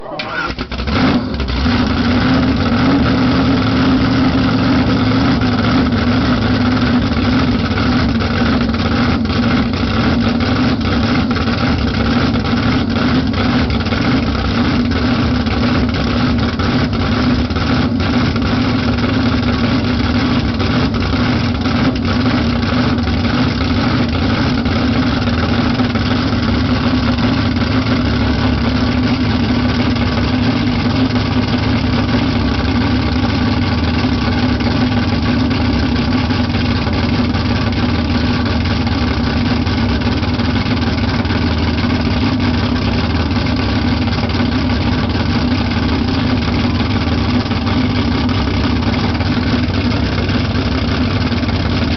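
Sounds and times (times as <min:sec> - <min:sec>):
drag car engine idling: 0:00.0 - 0:51.9.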